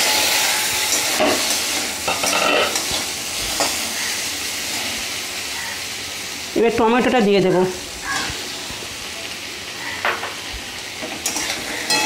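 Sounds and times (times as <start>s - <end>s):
metal spatula scraping: 0.0s - 4.1s, 11.2s - 12.0s
potatoes sizzling in a pan: 0.0s - 12.0s.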